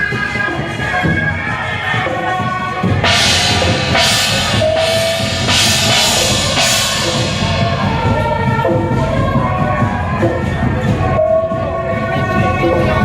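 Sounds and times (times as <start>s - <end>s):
cymbals crashing: 2.8s - 9.0s
drums pounding: 2.8s - 10.8s.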